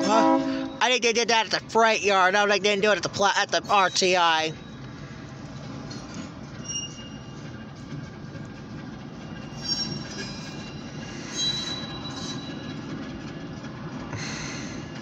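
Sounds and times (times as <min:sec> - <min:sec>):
train low rumble: 0:00.0 - 0:15.0
high-pitched wheel squeals: 0:06.6 - 0:07.4, 0:09.2 - 0:12.8.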